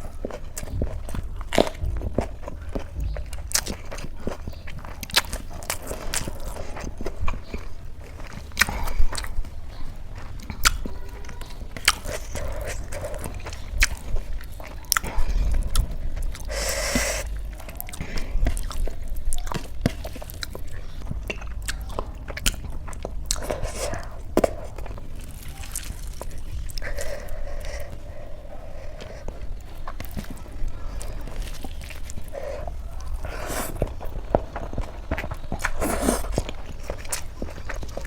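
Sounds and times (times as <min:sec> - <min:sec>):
chewing with wet mouth clicks: 0:00.0 - 0:38.0
crunch: 0:00.0 - 0:38.0
faint low hum: 0:00.0 - 0:38.0.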